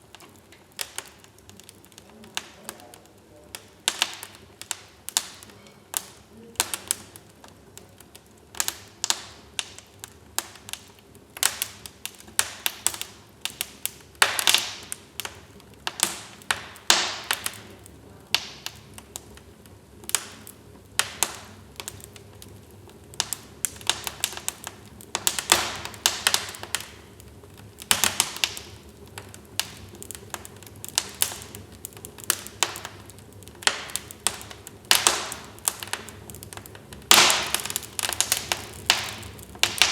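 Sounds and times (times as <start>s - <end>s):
hissing crackles: 0.0s - 39.9s
wood fire crackling: 0.0s - 39.9s.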